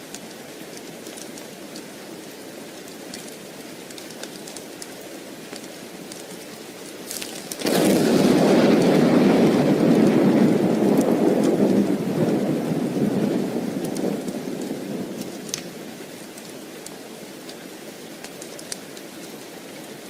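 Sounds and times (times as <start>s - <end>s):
steady rain: 0.0s - 20.0s
thunder rumbling: 7.4s - 16.1s.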